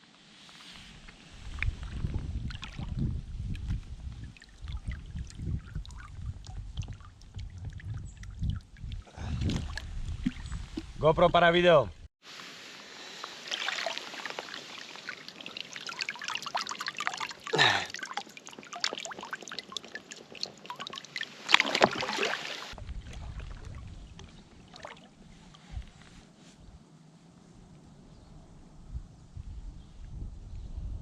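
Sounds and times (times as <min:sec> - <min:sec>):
water splashing and trickling: 0:00.6 - 0:11.0, 0:12.2 - 0:26.0.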